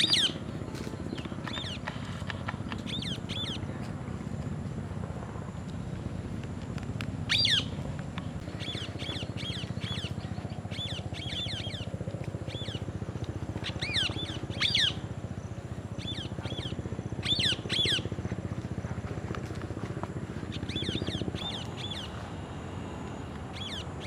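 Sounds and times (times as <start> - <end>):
steady low hum: 0.0 - 24.0
parrots chirping: 13.7 - 14.9.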